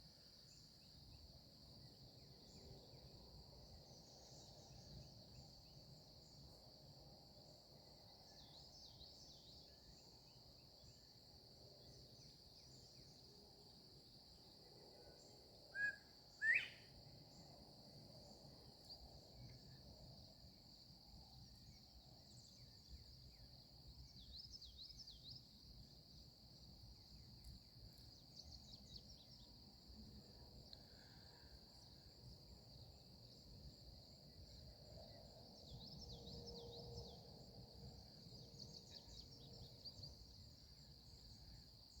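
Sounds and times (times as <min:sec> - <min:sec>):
high insect chorus: 0:00.0 - 0:42.0
bird two-note whistle: 0:15.8 - 0:16.9.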